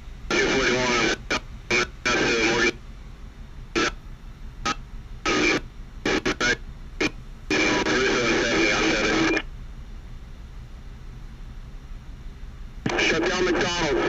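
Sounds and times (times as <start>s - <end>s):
steady low hum: 0.0s - 14.0s
garbled radio voice: 0.3s - 2.8s, 3.8s - 4.0s, 5.2s - 6.6s, 7.5s - 9.4s, 12.9s - 14.0s
police radio bursts: 0.3s - 2.8s, 3.8s - 4.0s, 4.7s - 9.4s, 12.9s - 14.0s.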